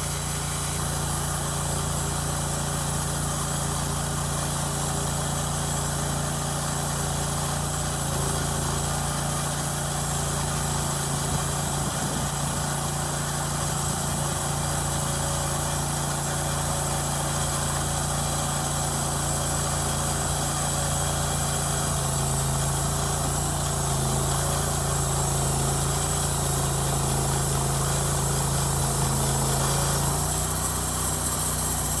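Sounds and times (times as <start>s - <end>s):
sawmill engine running: 0.0s - 32.0s.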